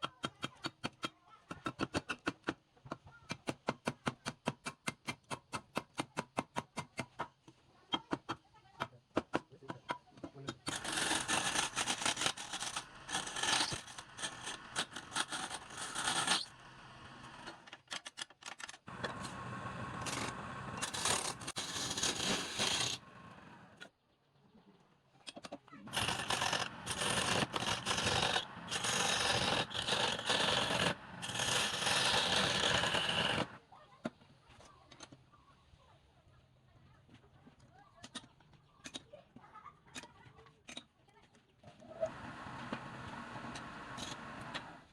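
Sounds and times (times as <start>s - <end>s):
hand tool scraping wood on a lathe: 10.7s - 16.6s, 20.0s - 23.0s, 25.9s - 33.6s.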